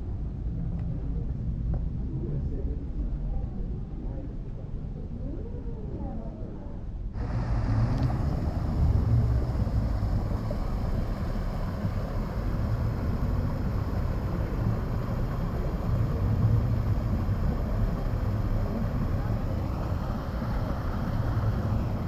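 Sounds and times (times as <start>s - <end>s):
boat engine rumble: 7.2s - 22.0s
rushing water: 7.2s - 22.0s
wind buffeting microphone: 7.2s - 22.0s.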